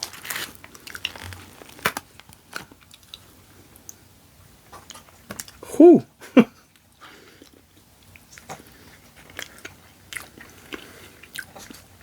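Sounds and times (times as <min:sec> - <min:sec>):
person chewing food: 0:00.0 - 0:04.0, 0:06.6 - 0:12.0.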